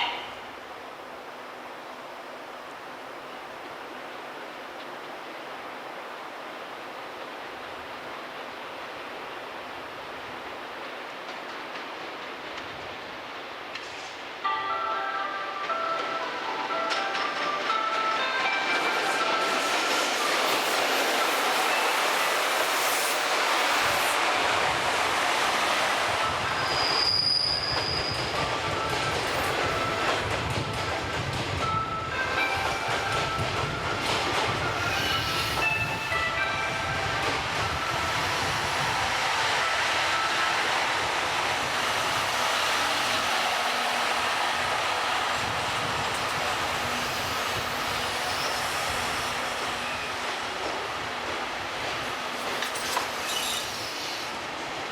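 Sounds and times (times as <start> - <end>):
train running on rails: 0.0 - 54.9
high wheel squeal: 26.4 - 28.5, 34.7 - 36.1, 47.0 - 50.2, 52.4 - 54.4.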